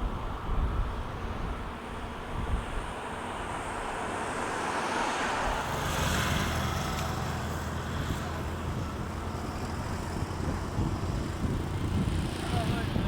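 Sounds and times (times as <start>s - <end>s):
engine humming: 3.2s - 13.0s.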